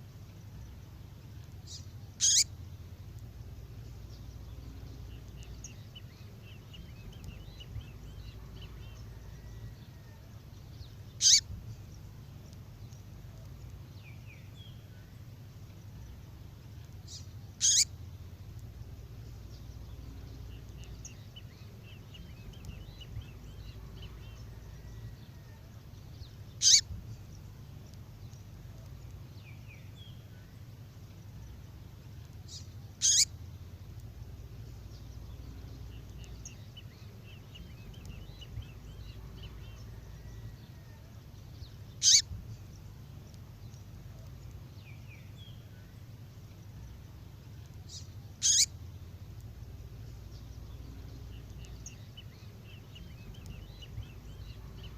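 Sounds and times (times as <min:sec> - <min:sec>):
faint bird twittering: 0:00.0 - 0:54.9
steady low hum: 0:00.0 - 0:54.9
bird call sweeping downward: 0:02.2 - 0:02.5, 0:11.2 - 0:11.4, 0:17.6 - 0:17.9, 0:26.6 - 0:26.9, 0:33.0 - 0:33.3, 0:42.0 - 0:42.3, 0:48.4 - 0:48.7.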